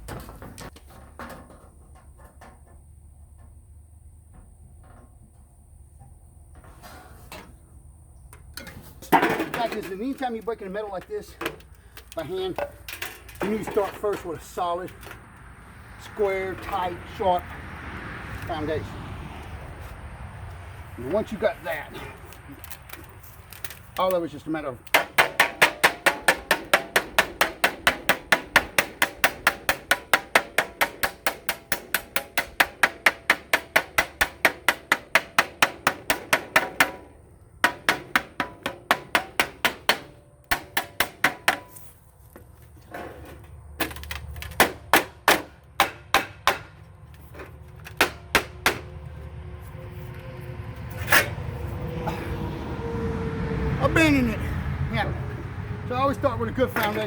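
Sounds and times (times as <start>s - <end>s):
hammer striking sheet metal: 24.9s - 41.8s, 44.6s - 46.7s.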